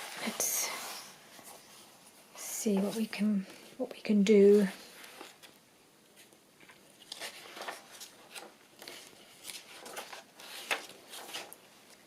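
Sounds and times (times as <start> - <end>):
paper and card rustling: 4.3 - 12.0.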